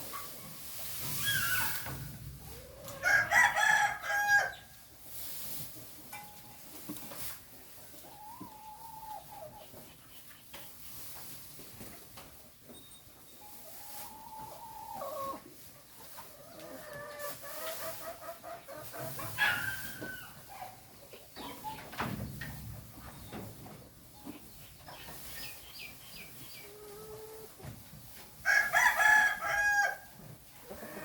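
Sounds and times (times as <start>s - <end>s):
hens clucking: 0.0s - 6.0s, 6.6s - 12.5s, 13.4s - 31.0s
rooster crowing: 3.0s - 4.5s.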